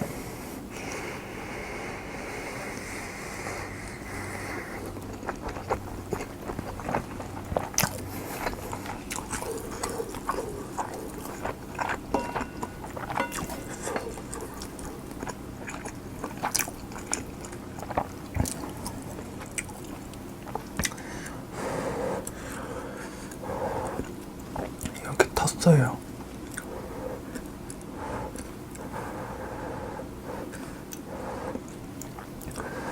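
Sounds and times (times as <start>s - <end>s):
wet chewing and biting: 3.9s - 21.0s.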